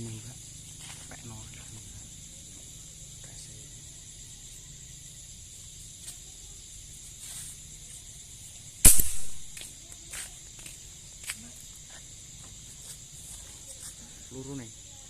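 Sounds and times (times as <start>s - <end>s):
insects chirring: 0.0s - 15.0s
air rifle shot: 8.8s - 9.6s.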